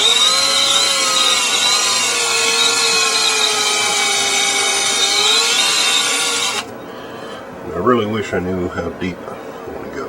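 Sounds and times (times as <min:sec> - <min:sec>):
electric drill boring into wood: 0:00.0 - 0:06.7.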